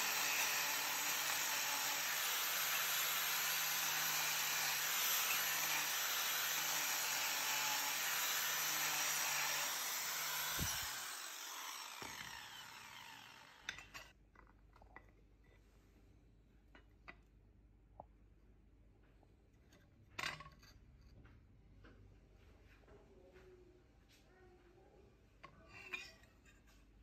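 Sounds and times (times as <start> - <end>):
electric grinder on steel: 0.0 - 14.1.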